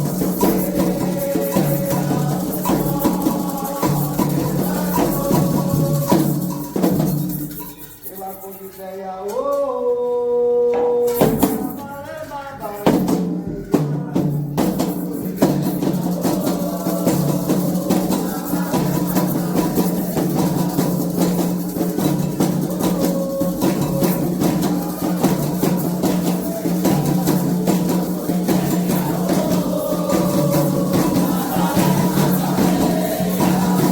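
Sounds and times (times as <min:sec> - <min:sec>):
hand drums playing rhythm: 0:00.0 - 0:08.2, 0:10.8 - 0:11.9, 0:12.8 - 0:33.9.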